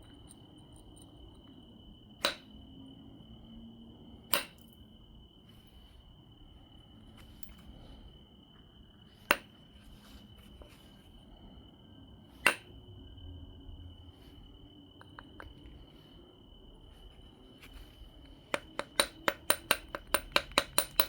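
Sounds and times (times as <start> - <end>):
stone knapping strikes: 2.2 - 2.5, 4.3 - 4.7
faint handling: 5.4 - 12.8, 14.0 - 19.0.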